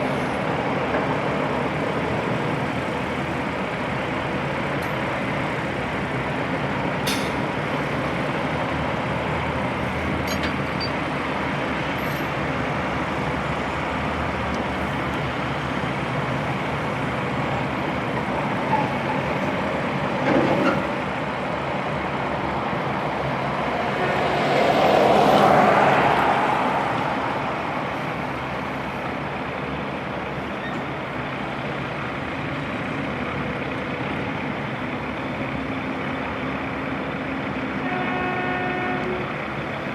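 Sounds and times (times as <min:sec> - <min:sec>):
truck diesel engine running: 0:01.6 - 0:20.2, 0:26.6 - 0:39.9
rush of noise: 0:21.8 - 0:28.6.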